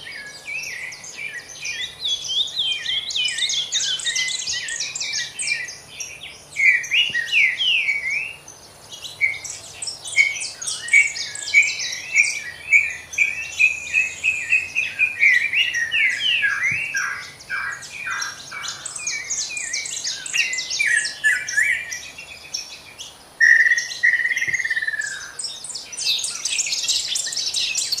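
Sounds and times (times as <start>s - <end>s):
birds chirping chorus: 0.0s - 28.0s
bird whistle: 6.6s - 8.4s, 9.1s - 22.0s, 23.4s - 25.4s.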